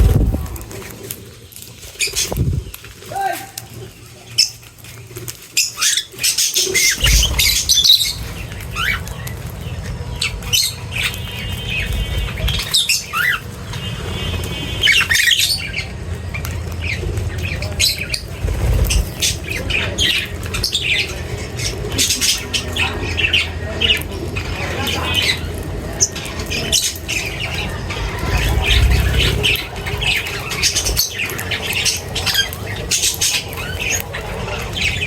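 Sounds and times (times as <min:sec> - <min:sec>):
steady low rumble: 0:00.0 - 0:01.2, 0:06.9 - 0:12.8, 0:15.5 - 0:35.0
birds squawking and chirping: 0:00.0 - 0:35.0.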